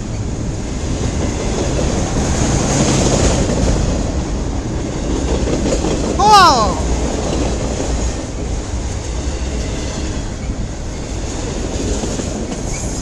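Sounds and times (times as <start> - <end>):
freight train rumbling and rattling: 0.0 - 6.2, 6.8 - 13.0.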